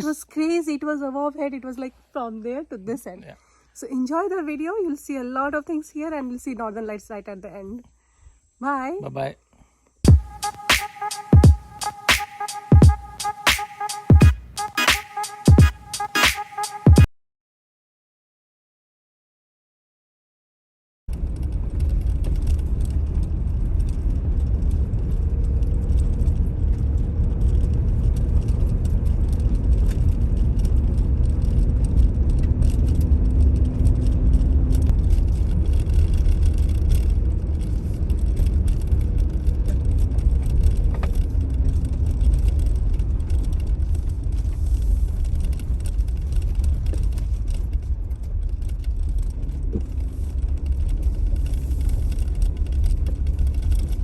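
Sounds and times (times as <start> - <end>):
car driving on road: 21.1 - 54.0.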